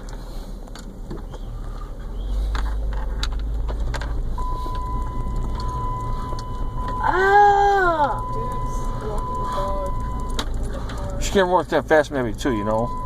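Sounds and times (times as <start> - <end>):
car engine and road rumble: 0.0 - 13.0
steady high tone: 4.4 - 10.4.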